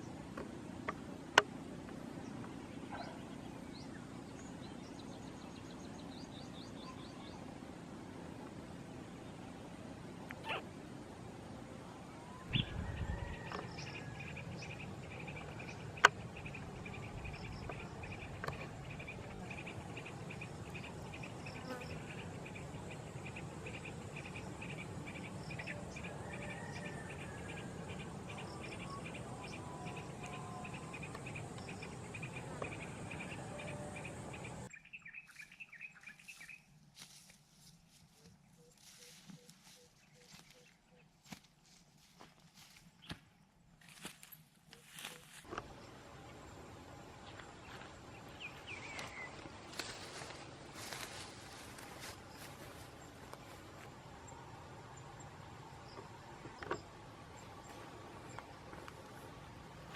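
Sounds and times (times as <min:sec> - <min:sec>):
outdoor background noise: 0:00.0 - 0:59.9
bird chirps: 0:38.1 - 0:41.1.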